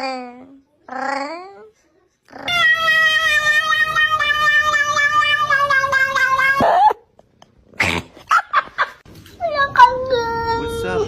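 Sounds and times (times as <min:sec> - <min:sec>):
cat yowling: 0:02.3 - 0:07.0.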